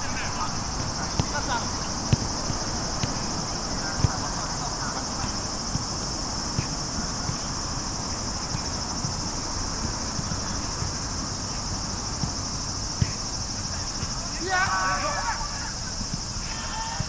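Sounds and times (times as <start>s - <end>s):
high-pitched insect chorus: 0.0s - 17.0s
soft thuds: 0.8s - 4.4s, 12.1s - 13.3s.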